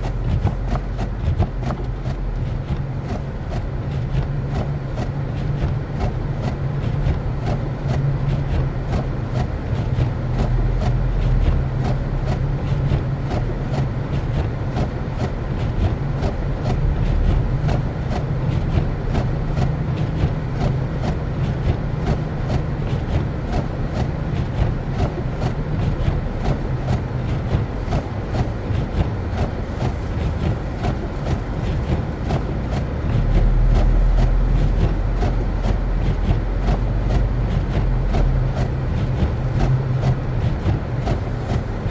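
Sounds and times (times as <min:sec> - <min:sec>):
car engine and tyres rumbling: 0:00.0 - 0:41.9.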